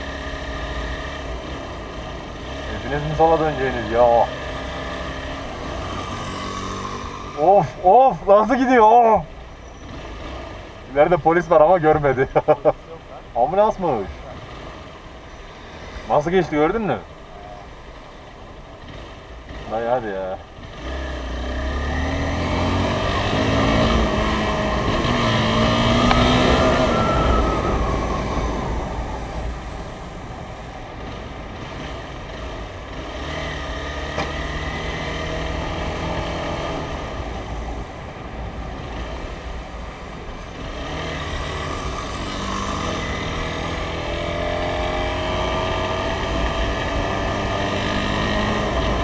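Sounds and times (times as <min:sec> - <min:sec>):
motorcycle engine accelerating: 0:00.0 - 0:09.0, 0:18.8 - 0:49.0
low wind rumble: 0:22.2 - 0:33.4.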